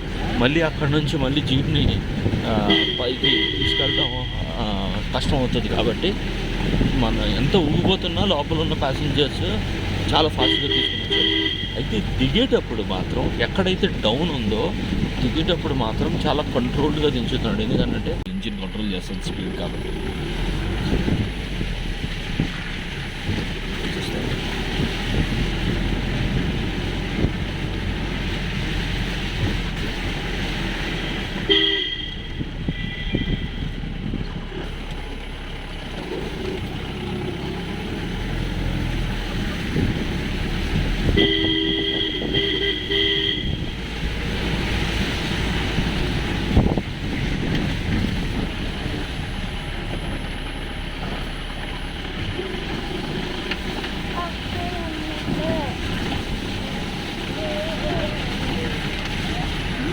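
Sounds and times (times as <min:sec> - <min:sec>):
jeep engine on rough track: 0:00.0 - 0:59.9
vehicle horn honking: 0:02.5 - 0:04.7, 0:10.3 - 0:12.0, 0:31.4 - 0:33.8, 0:41.0 - 0:44.1.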